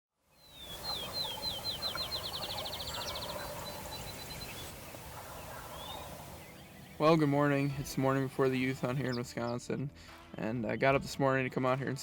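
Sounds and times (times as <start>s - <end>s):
songbird whistling and trilling: 0.3s - 4.8s
distant turkey gobbling: 0.6s - 7.0s.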